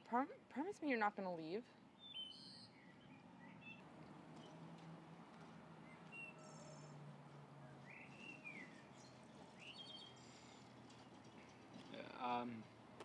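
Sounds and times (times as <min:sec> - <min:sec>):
faint bird chirps: 0:02.0 - 0:03.8.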